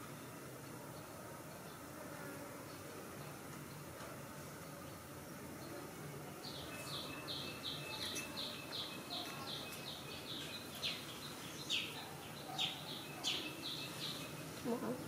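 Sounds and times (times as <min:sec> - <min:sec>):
bird chirping: 0:06.4 - 0:15.0.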